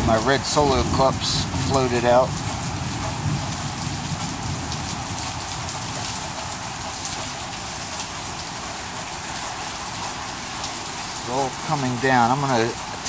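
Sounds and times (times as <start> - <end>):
heavy rain pouring: 0.0 - 13.0
raindrops pattering on surfaces: 0.0 - 13.0.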